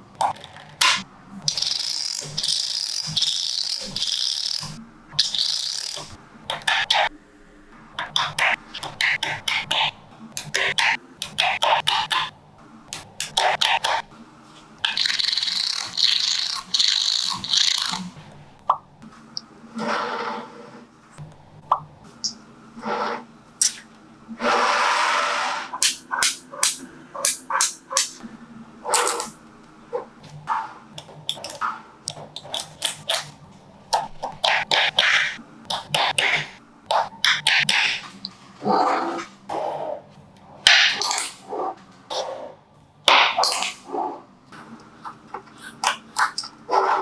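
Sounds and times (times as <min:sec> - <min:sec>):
magnetic balls clicking and rattling: 0:00.2 - 0:07.0, 0:14.8 - 0:18.2, 0:31.0 - 0:38.4.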